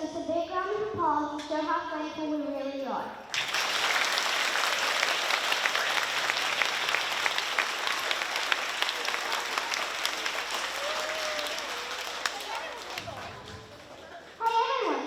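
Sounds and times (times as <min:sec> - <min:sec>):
audience applauding: 0:03.3 - 0:14.4.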